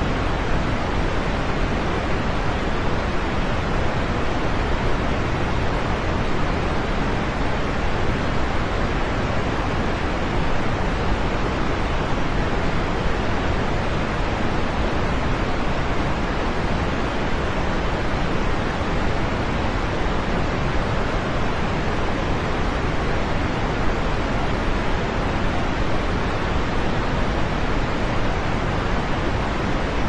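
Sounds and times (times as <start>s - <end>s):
steady rain: 0.0s - 30.0s.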